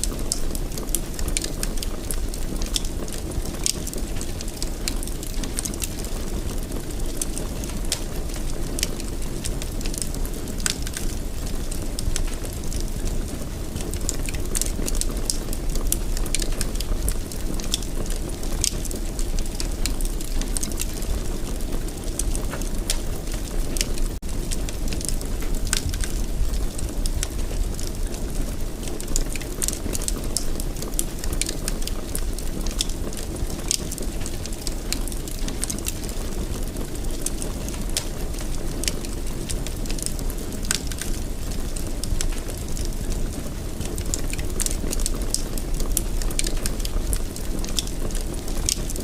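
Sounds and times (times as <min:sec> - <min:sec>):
fire burning in fireplace: 0:00.0 - 0:49.0
fire crackling and popping: 0:00.0 - 0:49.0.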